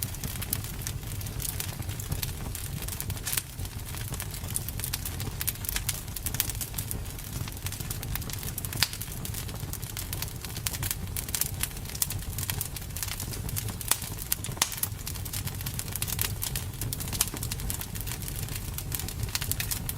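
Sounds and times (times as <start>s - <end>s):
campfire crackling: 0.0s - 19.9s
low rumble of flames: 0.0s - 19.9s
sharp pops and snaps: 7.4s - 9.2s, 10.6s - 15.0s.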